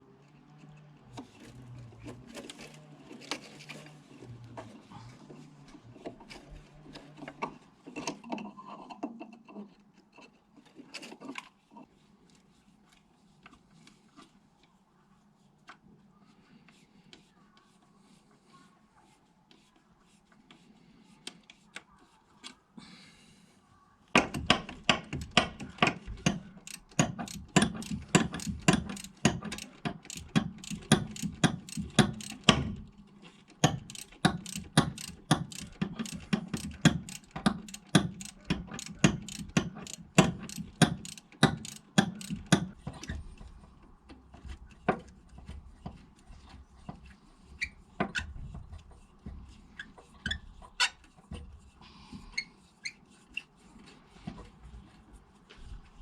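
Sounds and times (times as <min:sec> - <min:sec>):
socket ratchet clicking: 0:24.4 - 0:32.8, 0:33.6 - 0:42.8.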